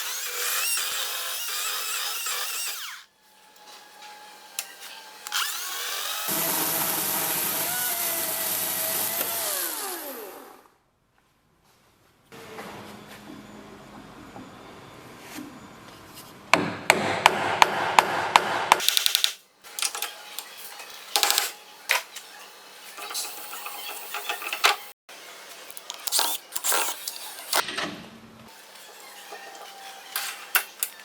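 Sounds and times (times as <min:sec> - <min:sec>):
lathe tool cutting wood: 0:04.4 - 0:10.6.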